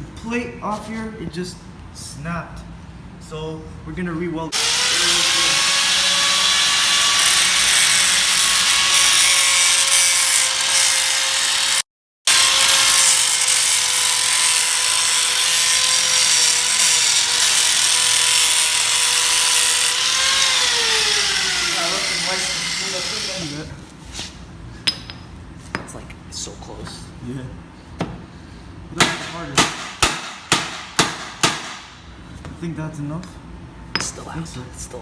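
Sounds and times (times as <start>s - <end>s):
power grinder grinding metal: 4.6s - 23.7s.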